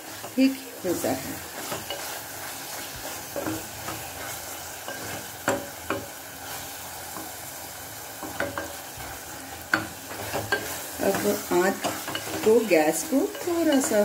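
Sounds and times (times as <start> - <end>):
food sizzling in a pan: 0.0 - 14.0
frying hiss: 0.0 - 14.0
spatula scraping and knocking pan: 0.0 - 14.0.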